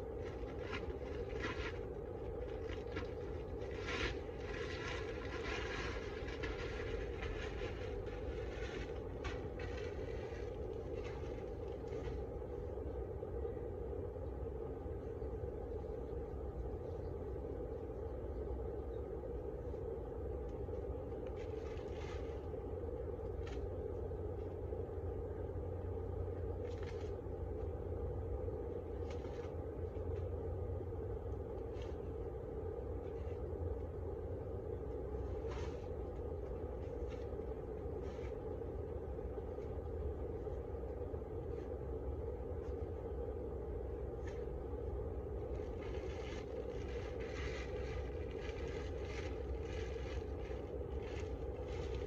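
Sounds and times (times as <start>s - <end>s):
scraping on beehive: 0.0s - 12.4s.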